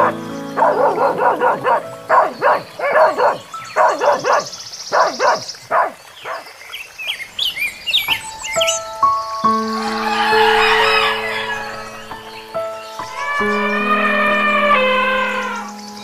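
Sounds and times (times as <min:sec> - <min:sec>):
dog barking: 0:00.0 - 0:06.5.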